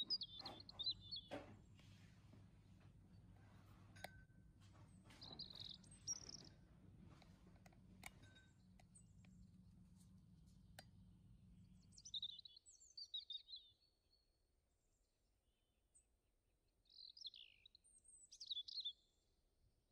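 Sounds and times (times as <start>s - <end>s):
faint bird chirps: 0.0s - 1.5s, 5.1s - 7.2s, 11.6s - 15.0s, 16.8s - 19.2s
low steady hum: 0.0s - 13.0s.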